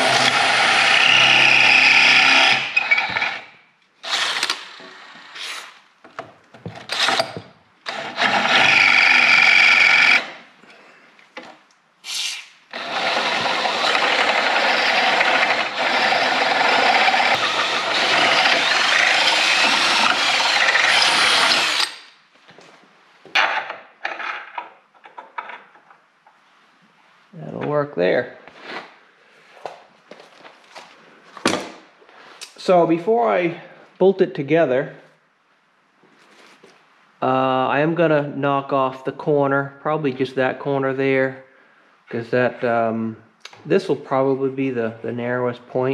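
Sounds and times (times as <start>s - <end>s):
power drill running: 0.0s - 5.5s, 7.9s - 10.4s, 12.7s - 22.1s.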